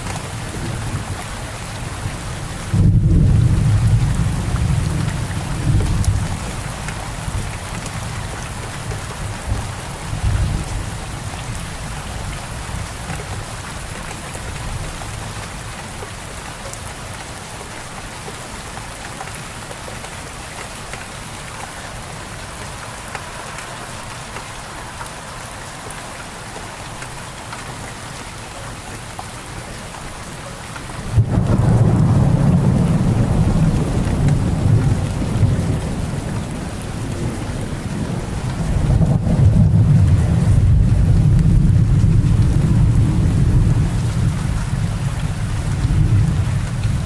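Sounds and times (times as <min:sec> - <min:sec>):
steady rain falling: 0:00.0 - 0:47.0
thunder rumbling: 0:02.1 - 0:08.1, 0:31.1 - 0:47.0.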